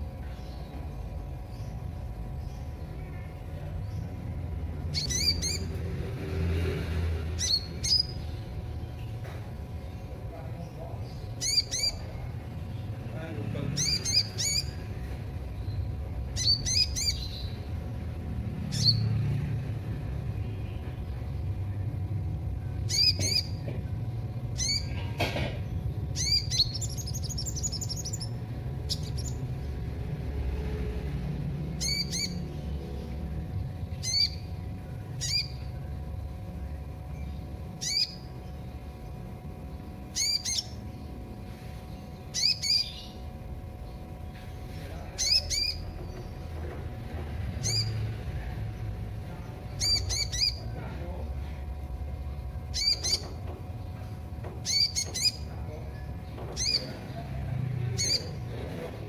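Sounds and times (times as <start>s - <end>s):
bird chirping: 0.0s - 6.2s, 7.2s - 13.0s, 13.7s - 19.6s, 22.7s - 23.7s, 24.5s - 25.0s, 25.8s - 30.2s, 31.7s - 35.9s, 37.1s - 41.2s, 41.9s - 46.6s, 47.5s - 48.2s, 48.8s - 50.8s, 52.7s - 54.0s, 54.6s - 57.2s, 57.9s - 58.4s
steady low hum: 0.0s - 59.0s.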